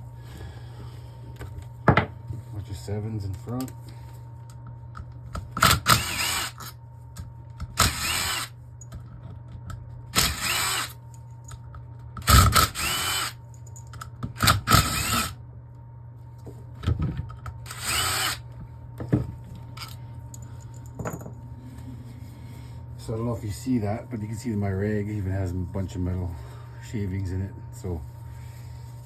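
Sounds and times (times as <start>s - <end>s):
power drill spinning up: 5.6s - 6.7s, 7.8s - 8.6s, 10.1s - 11.0s, 12.2s - 13.4s, 14.4s - 15.4s, 17.6s - 18.5s.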